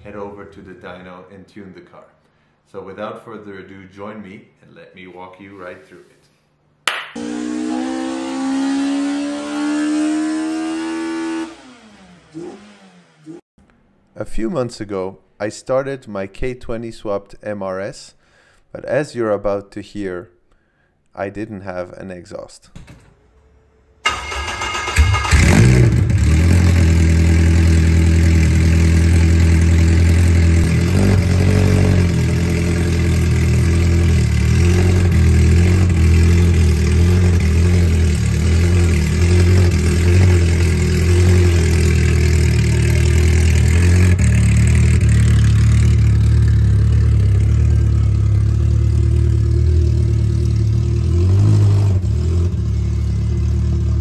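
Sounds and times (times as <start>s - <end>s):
loud car engine running: 25.0s - 54.0s.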